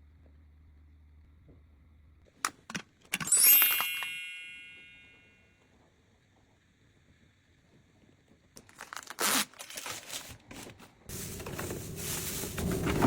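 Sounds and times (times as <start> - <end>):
packaging crinkling and tearing: 8.6 - 13.0.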